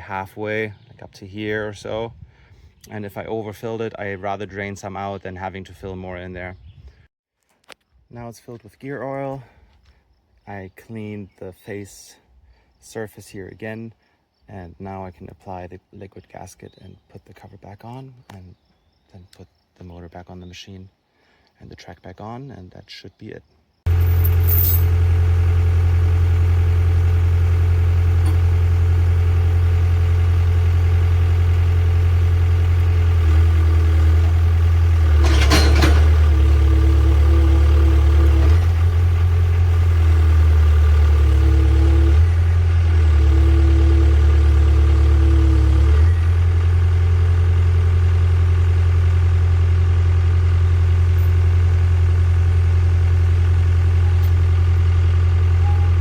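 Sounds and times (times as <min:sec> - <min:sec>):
excavator diesel engine running: 0:23.9 - 0:56.0.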